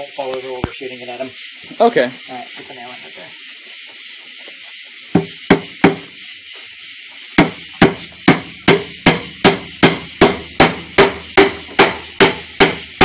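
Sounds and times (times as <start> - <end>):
steady high hiss: 0.0 - 13.0
hammer striking nail: 5.1 - 6.1, 7.4 - 12.9.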